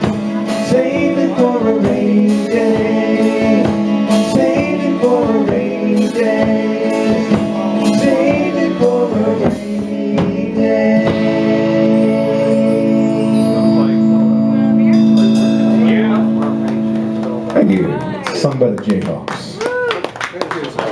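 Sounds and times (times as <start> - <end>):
drum kit beat: 0.0 - 12.9, 14.8 - 18.3
wavering melodic lead line: 0.0 - 18.3
guitars playing sustained chords: 0.0 - 18.5.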